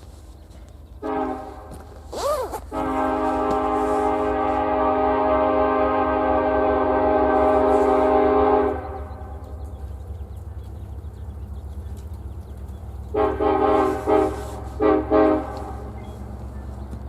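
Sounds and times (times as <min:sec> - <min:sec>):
low rumble of passing locomotive: 0:00.0 - 0:17.0
locomotive air horn: 0:01.0 - 0:09.4, 0:13.1 - 0:16.4.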